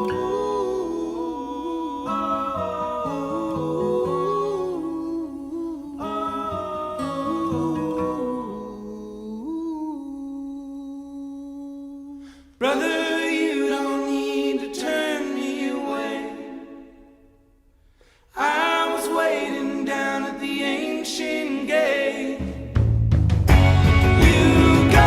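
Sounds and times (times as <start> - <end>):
voices singing: 0.0 - 17.2, 18.3 - 22.8, 23.5 - 25.0.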